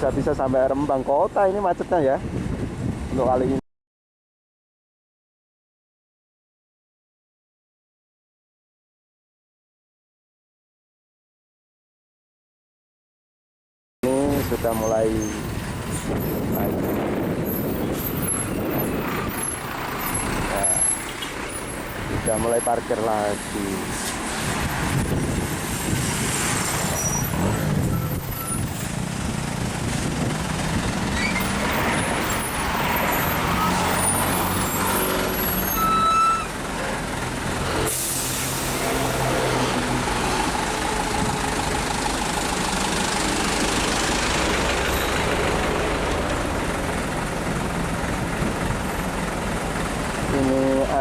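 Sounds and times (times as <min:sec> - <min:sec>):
diesel truck engines idling: 0:14.0 - 0:51.0
air brake hiss: 0:37.8 - 0:39.1.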